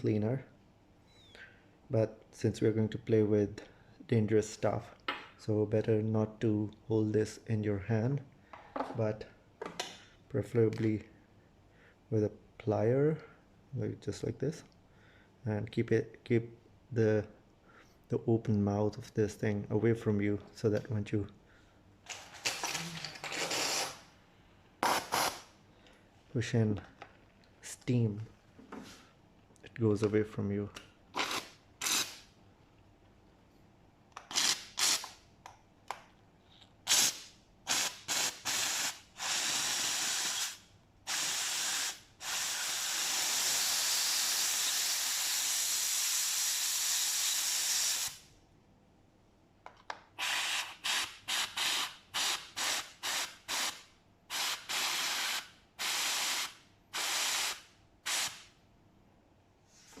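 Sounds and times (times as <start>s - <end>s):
steam cleaner hissing: 37.7s - 48.2s, 50.3s - 58.4s.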